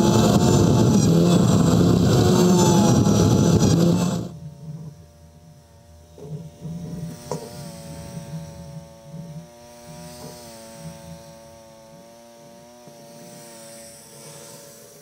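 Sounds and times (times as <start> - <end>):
pulsing engine rumble: 0.0 - 11.8
lawn tractor whine: 0.0 - 15.0.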